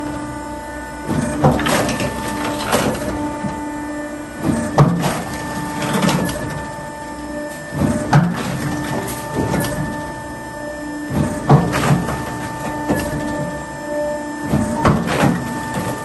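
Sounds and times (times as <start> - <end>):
motor hum: 0.0 - 16.0.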